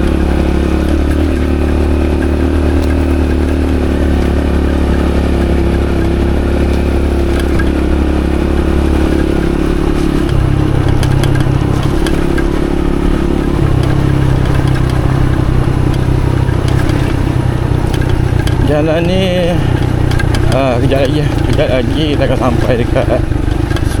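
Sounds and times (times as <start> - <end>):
motorcycle engine running: 0.0 - 24.0
small clicks and rattles: 5.2 - 7.9, 8.9 - 24.0.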